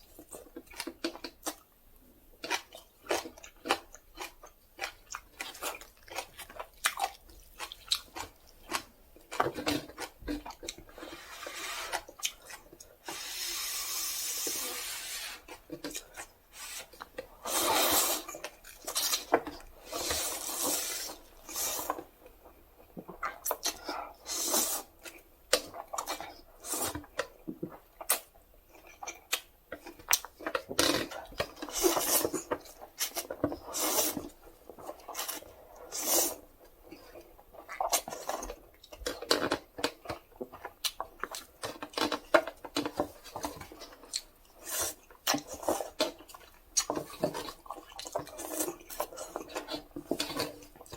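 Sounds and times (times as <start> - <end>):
rustling of noodles: 5.4 - 22.1.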